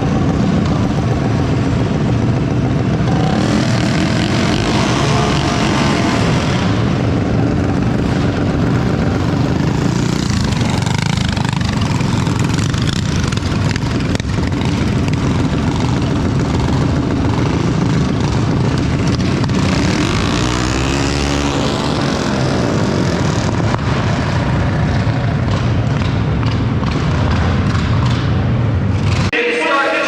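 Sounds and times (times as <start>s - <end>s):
mini bike engines running: 0.0s - 29.3s.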